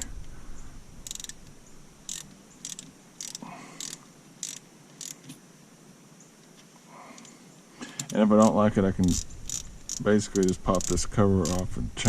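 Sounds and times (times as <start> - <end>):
ratchet wrench clicking: 1.0 - 1.4, 2.1 - 5.2, 8.0 - 11.7.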